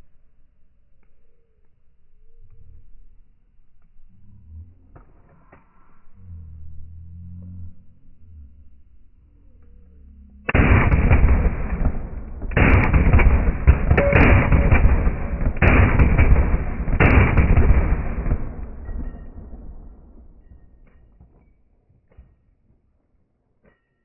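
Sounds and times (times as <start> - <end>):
pistol firing rapid shots: 10.5 - 19.9
gunshot echo: 10.5 - 20.9.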